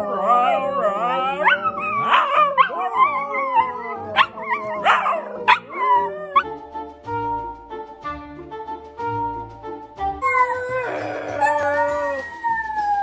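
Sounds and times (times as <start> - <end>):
dog howling and whining: 0.0 - 6.5, 10.2 - 13.0
dog yips: 0.0 - 6.5, 10.2 - 13.0
background music: 0.0 - 13.0.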